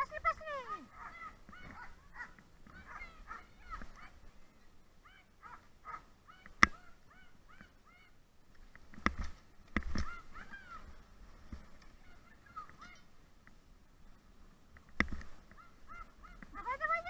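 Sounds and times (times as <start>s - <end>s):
dogs yipping: 0.3s - 4.2s, 5.0s - 8.2s, 10.0s - 11.0s, 12.0s - 13.1s, 15.5s - 17.0s.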